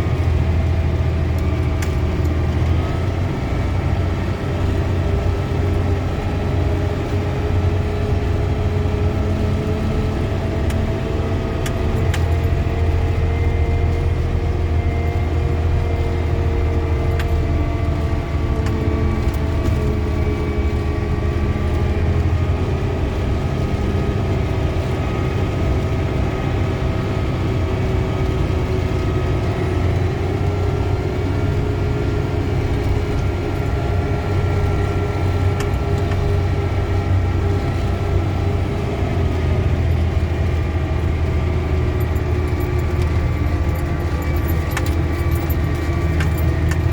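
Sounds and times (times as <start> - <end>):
road noise: 0.0 - 46.9
vehicle engine drone: 0.0 - 46.9.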